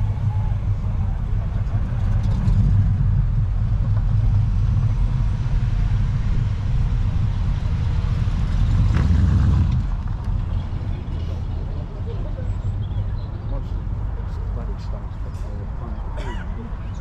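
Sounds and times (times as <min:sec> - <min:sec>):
car engine running: 0:00.0 - 0:11.6.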